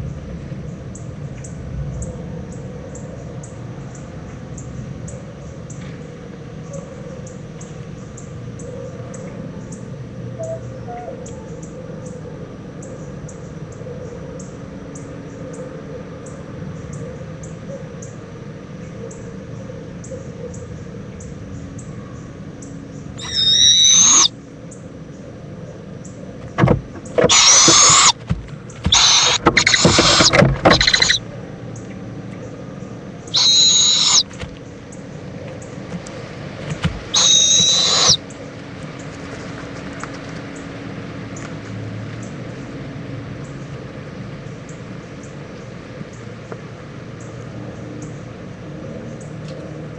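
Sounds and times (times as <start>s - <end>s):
owlet screeching: 23.2s - 24.3s, 26.4s - 31.2s, 33.3s - 34.5s, 36.7s - 38.2s.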